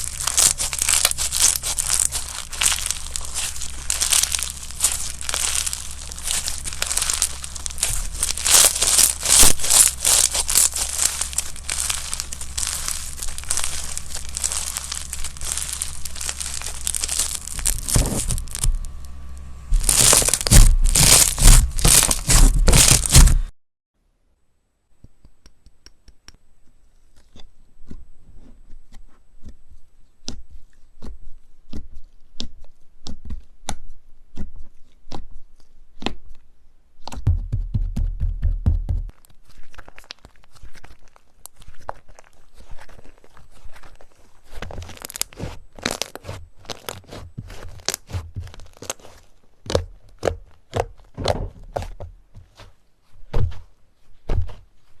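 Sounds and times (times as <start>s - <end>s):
slime crackling and crunching: 0.0s - 23.5s, 39.0s - 54.7s.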